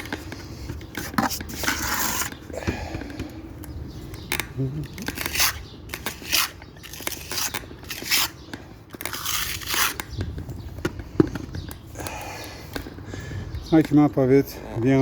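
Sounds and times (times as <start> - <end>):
trowel scraping mortar: 1.0 - 2.4, 5.0 - 8.4, 9.0 - 10.1.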